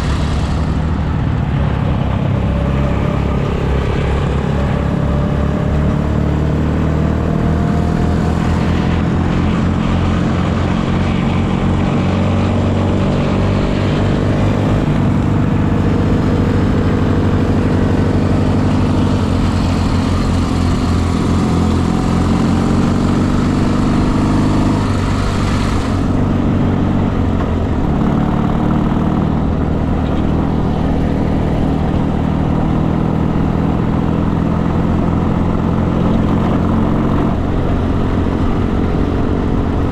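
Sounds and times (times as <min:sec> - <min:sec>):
road and air noise hiss: 0:00.0 - 0:05.5, 0:07.5 - 0:27.9
motorcycle engine accelerating: 0:00.0 - 0:39.9.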